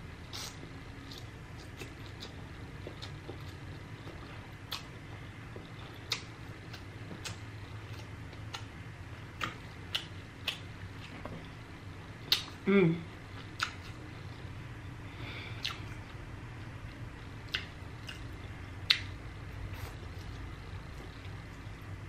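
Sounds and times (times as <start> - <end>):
low steady hum: 0.0 - 22.0
wet chewing smacks: 17.5 - 19.1.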